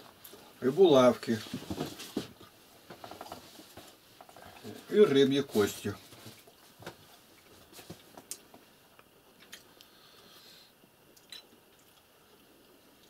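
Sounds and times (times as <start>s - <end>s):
quiet chewing: 6.4s - 13.0s.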